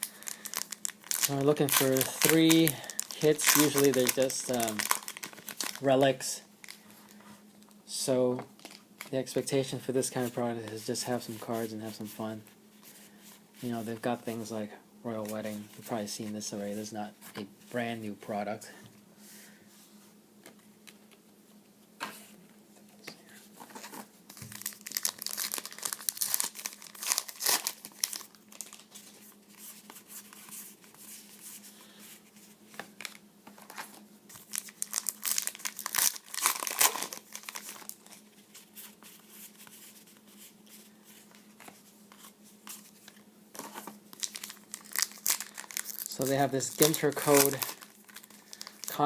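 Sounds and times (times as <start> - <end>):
wrappers tearing and crinkling: 0.0 - 6.0, 24.3 - 29.3, 33.0 - 38.2, 43.6 - 49.0.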